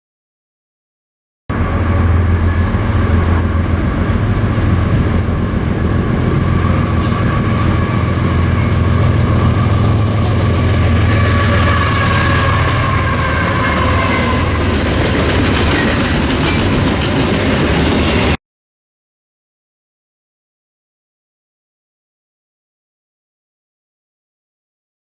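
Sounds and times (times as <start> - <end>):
train running by: 1.5 - 18.4.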